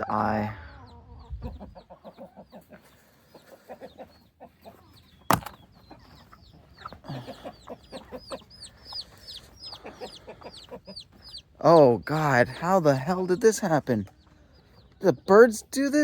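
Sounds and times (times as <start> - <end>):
chickens clucking: 0.0 - 16.0
sharp knock: 5.3 - 5.6.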